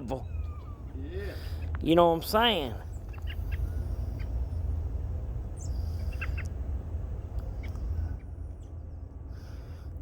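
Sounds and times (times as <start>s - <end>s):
faint bird chirps: 0.0s - 1.7s
steady low rumble: 0.0s - 10.0s.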